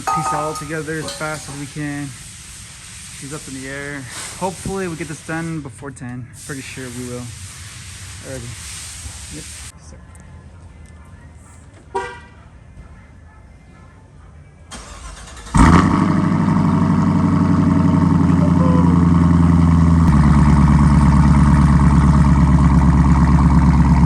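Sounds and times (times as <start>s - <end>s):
car engine starting and idling: 14.7s - 24.0s.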